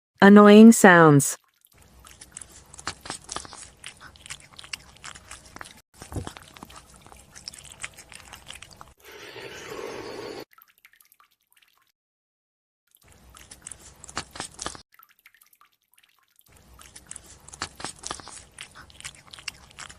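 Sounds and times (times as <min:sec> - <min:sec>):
person chewing with wet crunching: 0:01.5 - 0:09.0, 0:13.0 - 0:15.4, 0:16.0 - 0:19.9.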